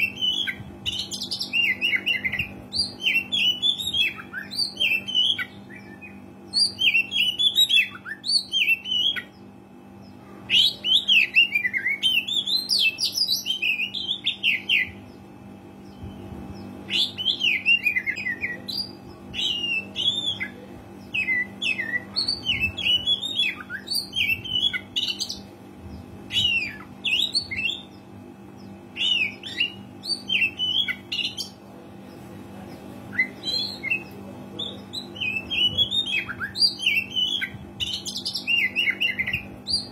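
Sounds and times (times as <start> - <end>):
steady low hum: 0.0 - 39.9
bird whistling and chirping: 29.0 - 31.5, 33.1 - 39.9.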